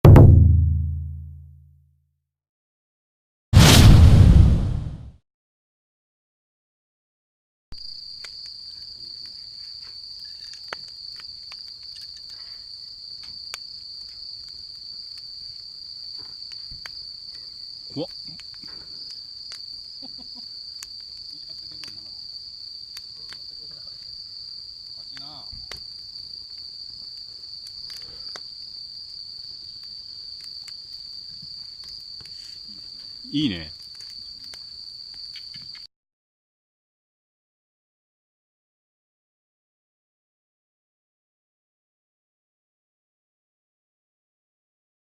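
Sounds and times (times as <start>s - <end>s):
crickets chirping: 7.8s - 35.9s.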